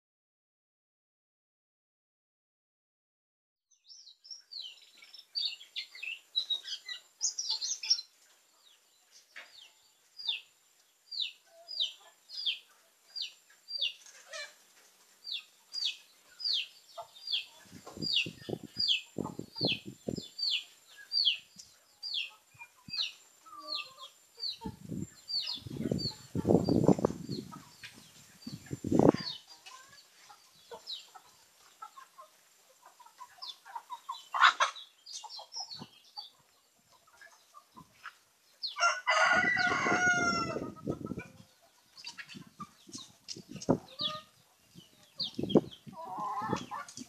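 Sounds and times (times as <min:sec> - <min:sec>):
small bird chirping: 0:03.7 - 0:14.5, 0:15.2 - 0:32.0, 0:40.9 - 0:47.0.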